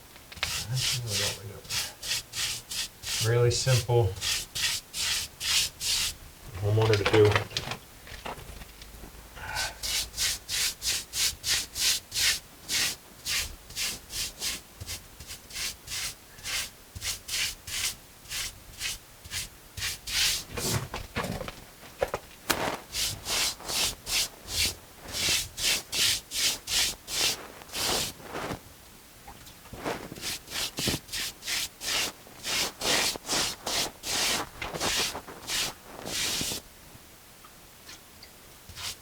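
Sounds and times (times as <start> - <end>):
brush scrubbing over stucco: 0.4 - 6.8, 9.7 - 21.0, 22.5 - 28.6, 29.7 - 36.6, 38.7 - 39.0.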